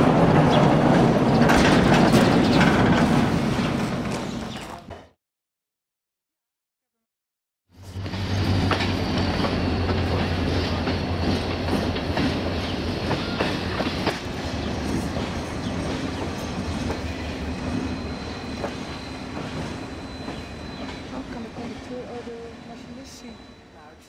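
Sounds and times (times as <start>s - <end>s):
wheels clicking over rails: 0.0s - 4.9s
train coach rumbling: 0.0s - 5.0s, 7.8s - 24.0s.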